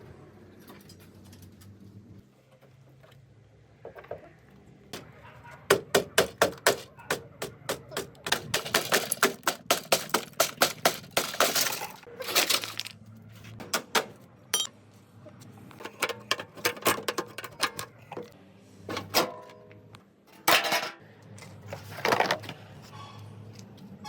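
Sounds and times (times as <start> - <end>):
clinks of metal parts and tools: 8.2 - 13.0, 14.5 - 14.8, 15.7 - 18.3, 18.9 - 23.8.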